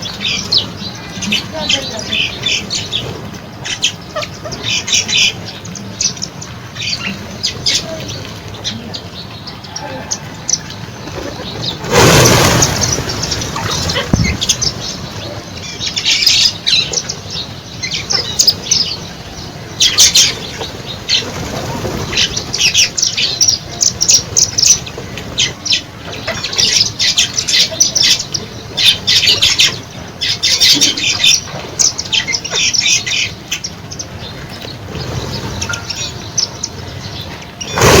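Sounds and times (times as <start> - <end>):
birds chirping: 0.0 - 38.0
wingbeats of birds taking off: 10.5 - 38.0.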